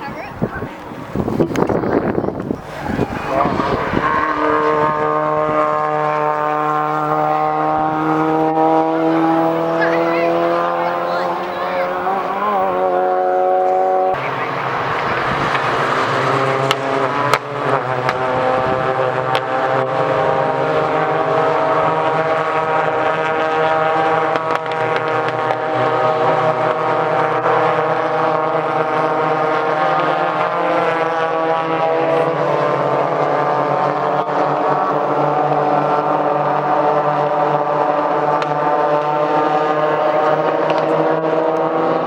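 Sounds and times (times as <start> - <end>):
race car engines droning: 0.0 - 42.0.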